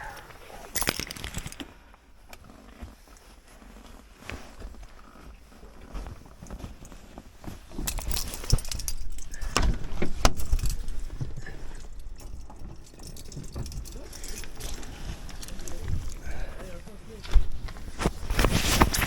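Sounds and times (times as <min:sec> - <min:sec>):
clicks knocks and rattling: 0:00.7 - 0:01.6, 0:07.7 - 0:16.2.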